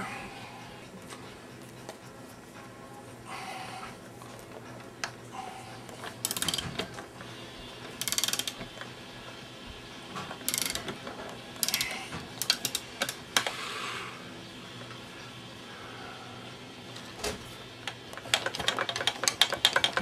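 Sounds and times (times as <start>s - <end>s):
ratchet wrench clicking: 6.2s - 6.8s, 8.0s - 8.6s, 10.5s - 10.8s, 11.6s - 13.2s
sharp metal clicks: 6.2s - 6.9s, 8.0s - 8.6s, 10.5s - 10.9s, 11.6s - 13.2s.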